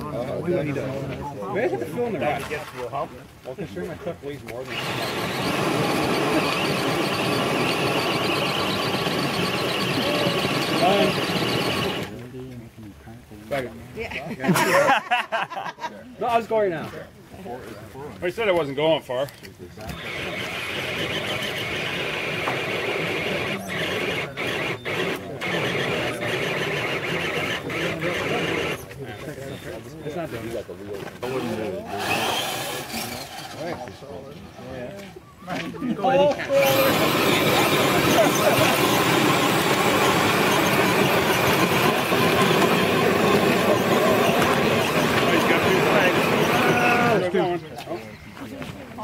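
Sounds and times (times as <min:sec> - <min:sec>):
toy truck motor whining: 0:04.6 - 0:12.1, 0:19.9 - 0:28.9, 0:31.2 - 0:33.9, 0:36.5 - 0:47.3.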